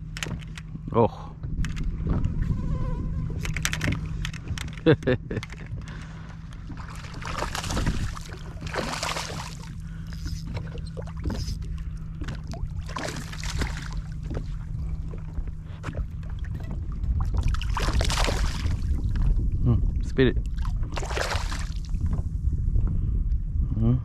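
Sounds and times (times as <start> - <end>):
handling knocks and clicks: 0.0 - 0.8, 1.4 - 2.4, 3.4 - 6.8
water sloshing around kayak: 0.0 - 22.5
low rumble on microphone: 0.0 - 24.0
steady low hum: 0.0 - 24.0.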